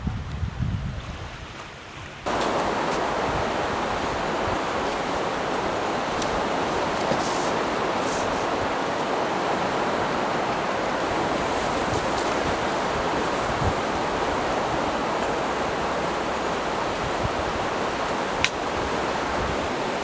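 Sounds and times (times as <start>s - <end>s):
strong wind: 0.0s - 20.0s
heavy surf: 2.3s - 20.0s
faint ticks: 18.0s - 18.6s.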